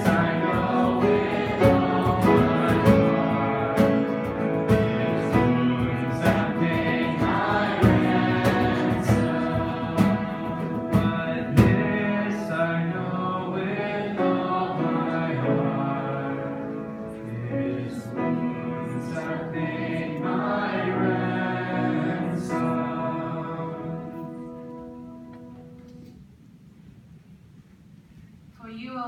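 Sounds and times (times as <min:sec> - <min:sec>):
sharp rhythmic strokes: 0:00.0 - 0:12.2
instrumental accompaniment: 0:00.0 - 0:12.4
voices singing together: 0:00.0 - 0:24.5.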